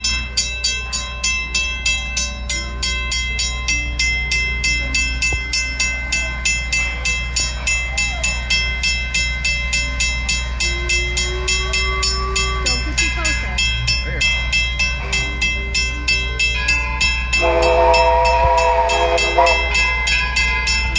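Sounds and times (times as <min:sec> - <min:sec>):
steam locomotive chuffing: 0:00.0 - 0:20.9.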